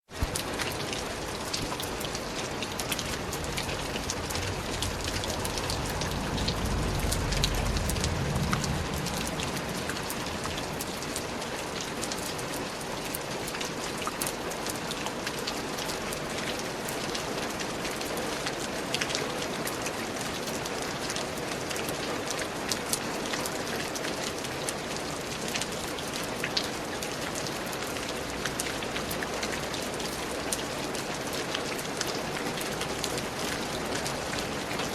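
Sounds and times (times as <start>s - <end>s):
raindrops striking close by: 0.0s - 34.9s
steady rain falling: 0.0s - 34.9s
low rumble: 2.9s - 11.5s.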